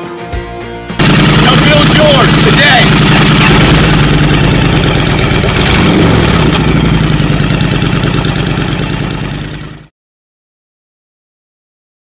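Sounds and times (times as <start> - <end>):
motorcycle engine idling: 1.0 - 9.9.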